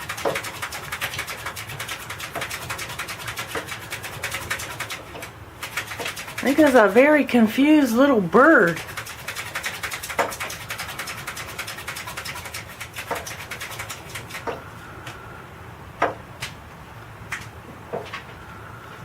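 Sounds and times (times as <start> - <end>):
bird tapping on window glass: 12.2 - 14.6, 16.0 - 16.6.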